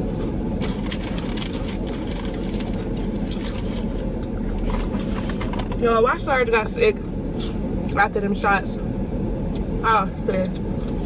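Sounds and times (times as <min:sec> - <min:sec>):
car cabin hum: 0:00.0 - 0:11.0
crisp crackles and clicks: 0:00.6 - 0:04.4.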